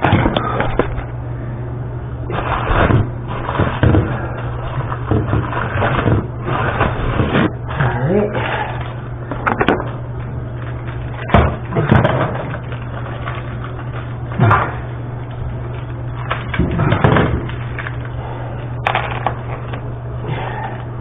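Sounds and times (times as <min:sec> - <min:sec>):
steady low hum: 0:00.0 - 0:21.0
objects knocking and clattering: 0:02.3 - 0:07.8, 0:09.3 - 0:10.0, 0:10.6 - 0:14.9, 0:15.7 - 0:18.1, 0:18.8 - 0:19.8.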